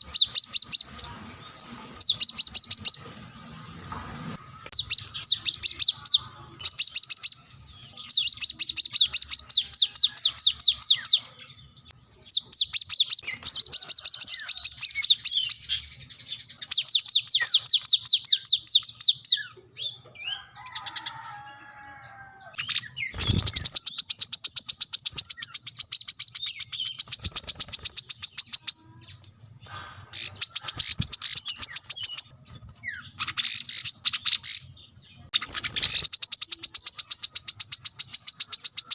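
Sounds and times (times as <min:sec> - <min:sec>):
bird singing rapid high trills: 0:22.5 - 0:29.0, 0:30.1 - 0:38.9.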